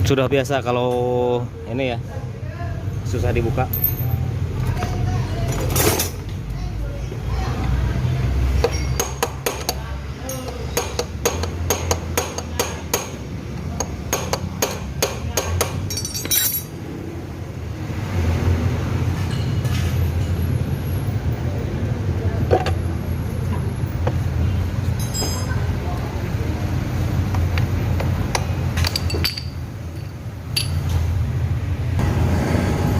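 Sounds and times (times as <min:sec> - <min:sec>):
hammer tapping on metal: 0:08.6 - 0:13.2, 0:13.8 - 0:16.0.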